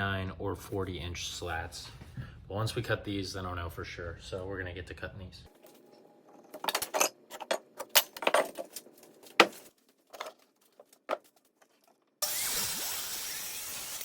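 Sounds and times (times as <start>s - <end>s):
power tool running: 12.2s - 14.0s.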